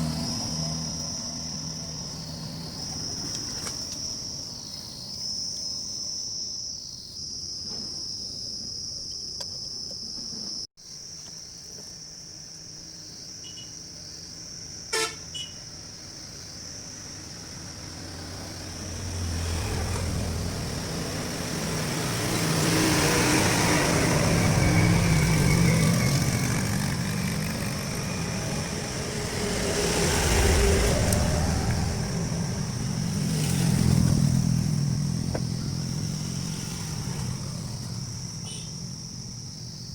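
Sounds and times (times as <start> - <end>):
vehicle engine noise: 0.0 - 4.2, 16.7 - 39.6
vehicle horn toot: 14.9 - 15.6, 38.4 - 38.8
high-pitched whine: 17.1 - 39.9.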